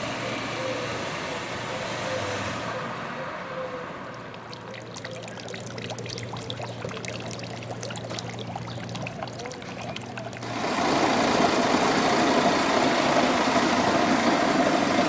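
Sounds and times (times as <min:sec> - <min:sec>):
water splashing and trickling: 0:04.0 - 0:12.0.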